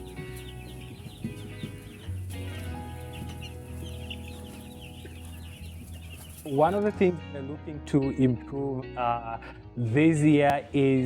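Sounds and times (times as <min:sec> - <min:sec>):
chicks peeping: 0:00.0 - 0:07.1
background music: 0:00.0 - 0:11.0.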